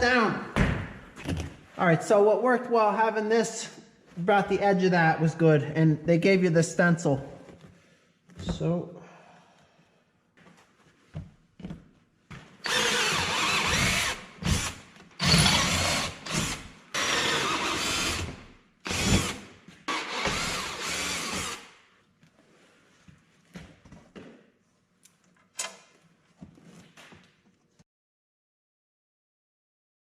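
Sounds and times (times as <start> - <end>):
power drill running: 12.6 - 21.7.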